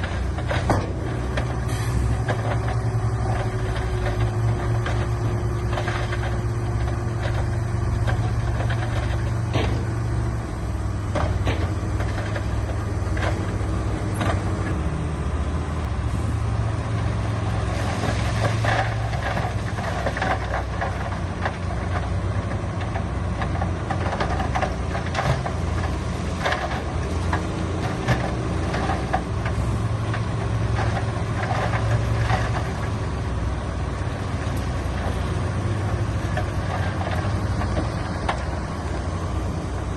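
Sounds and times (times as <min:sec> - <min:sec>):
knocks and clanks: 0:00.0 - 0:10.0, 0:11.1 - 0:14.8
diesel engine running: 0:00.0 - 0:39.9.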